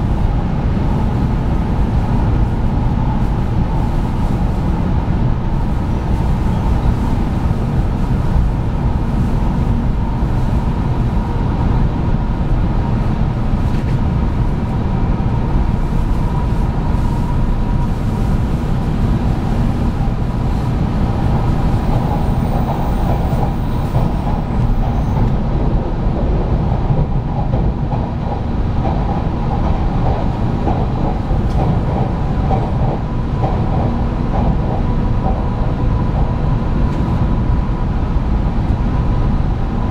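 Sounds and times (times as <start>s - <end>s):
train rumbling at speed: 0.0s - 39.9s.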